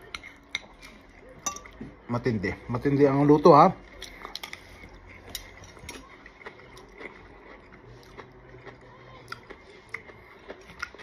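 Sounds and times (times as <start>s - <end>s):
chewing food: 3.3s - 11.0s.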